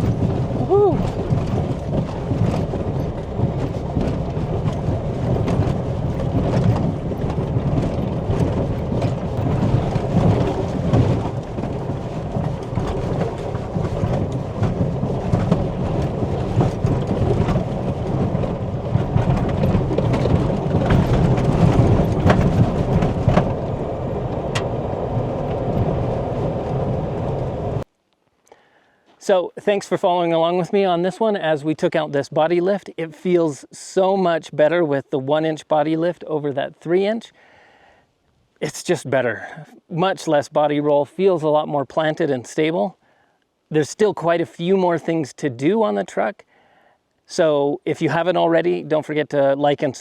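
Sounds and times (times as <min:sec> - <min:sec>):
knocks and rattles: 0:00.0 - 0:27.4
truck rumbling over dirt trail: 0:00.0 - 0:27.9.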